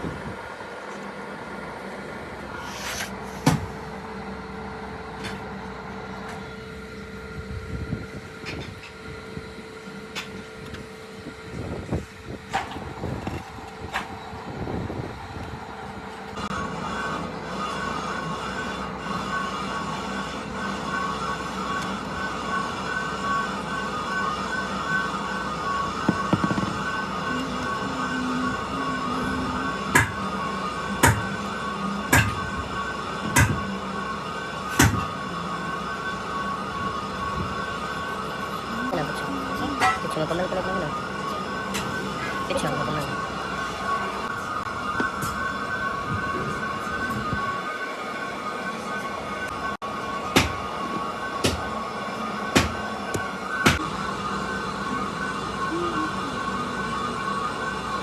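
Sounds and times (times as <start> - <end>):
factory machinery humming: 0.0 - 58.0
heavy metal impacts: 30.0 - 30.2
sharp metal knocks: 30.0 - 30.2, 31.0 - 31.3, 32.1 - 32.4, 33.3 - 33.6, 34.7 - 35.1.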